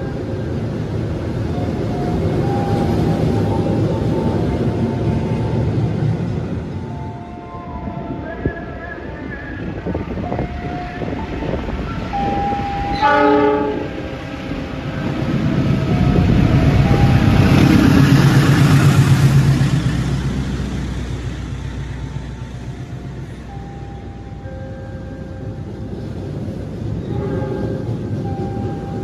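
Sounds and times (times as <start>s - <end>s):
carriages rolling on rails: 0.0s - 29.0s
locomotive engine passing: 0.0s - 29.0s
train horn blast: 12.7s - 14.0s, 27.1s - 27.9s.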